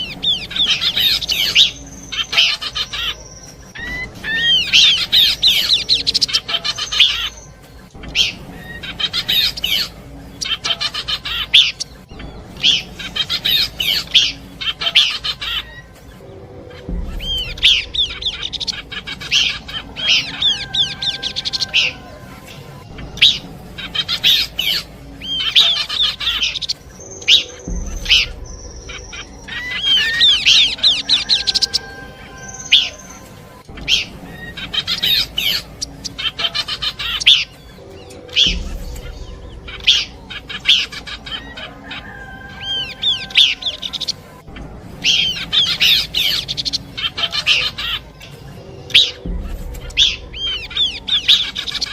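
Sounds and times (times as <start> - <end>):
bird song chirps and trills: 0.0 - 51.9.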